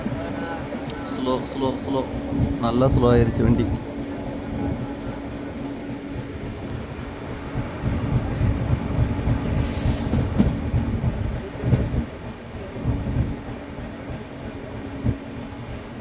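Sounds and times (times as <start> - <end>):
train wheels rumbling on track: 0.0 - 16.0
short hiss: 9.5 - 10.3.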